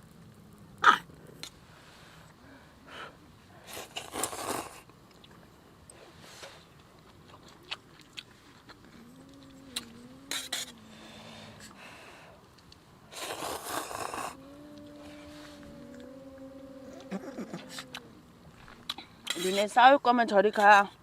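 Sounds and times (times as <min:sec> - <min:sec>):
eating and chewing: 0:03.5 - 0:19.8.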